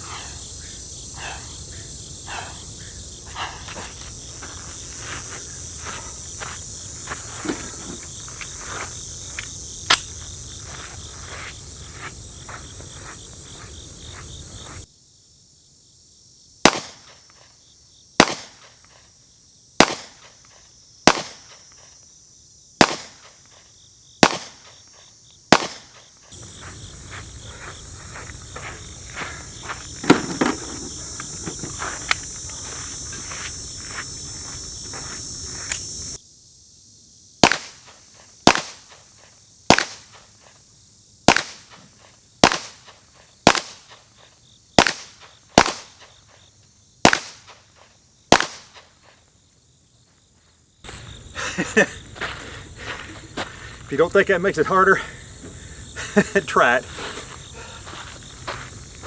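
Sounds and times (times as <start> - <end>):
insects chirring: 0.0 - 59.0
footsteps: 3.3 - 14.9, 24.3 - 36.0, 50.1 - 55.6, 56.2 - 59.0
handgun shots: 16.7 - 17.1, 18.2 - 18.6, 19.8 - 20.2, 21.1 - 21.5, 22.8 - 23.3, 24.2 - 24.7, 25.5 - 26.0, 37.4 - 38.9, 39.7 - 40.2, 41.3 - 41.8, 42.4 - 42.8, 43.5 - 43.9, 44.8 - 46.0, 47.1 - 47.6, 48.3 - 48.8.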